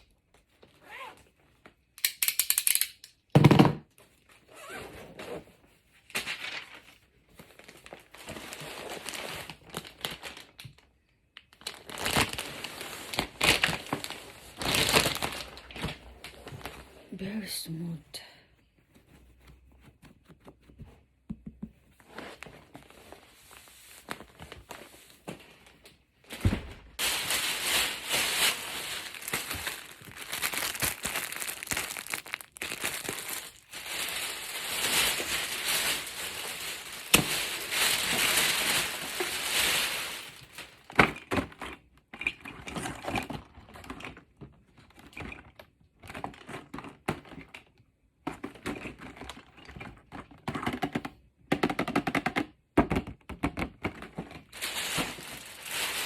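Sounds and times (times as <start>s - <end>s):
packaging crinkling and rustling: 3.9s - 17.1s, 21.9s - 47.7s, 53.6s - 56.0s.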